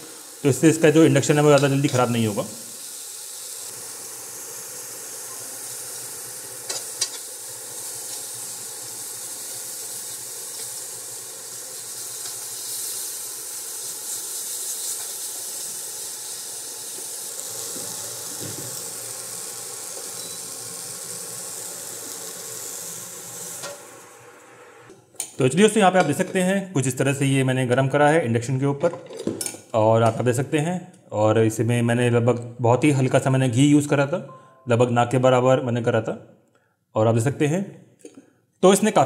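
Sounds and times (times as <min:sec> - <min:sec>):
food sizzling in a pan: 0:00.0 - 0:24.9.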